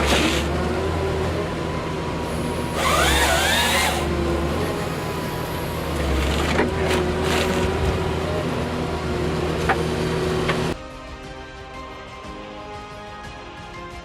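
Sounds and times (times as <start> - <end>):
heavy machine engine running: 0.0 - 10.8.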